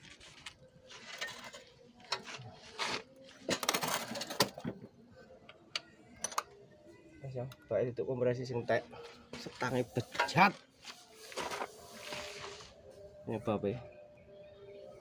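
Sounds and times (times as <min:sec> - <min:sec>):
metal tools scraping and clinking: 0:00.9 - 0:02.4, 0:10.1 - 0:10.4.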